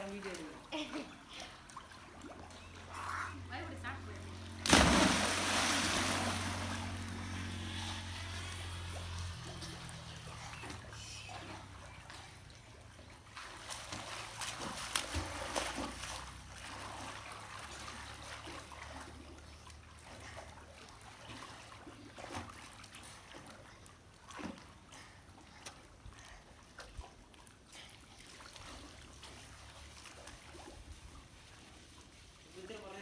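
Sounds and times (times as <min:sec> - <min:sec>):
low steady hum: 0:00.0 - 0:18.4
water splashing and sloshing: 0:00.0 - 0:33.0.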